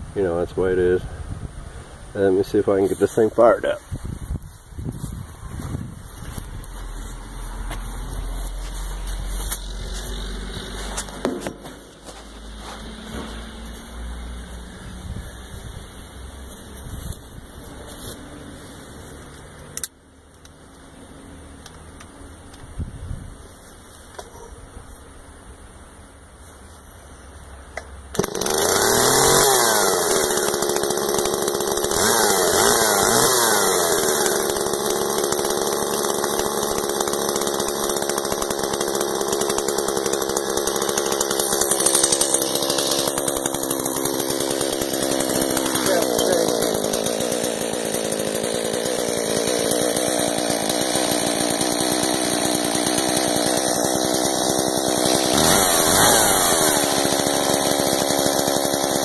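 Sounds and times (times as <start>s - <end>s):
chainsaw engine revving: 6.1s - 19.9s, 28.1s - 59.0s.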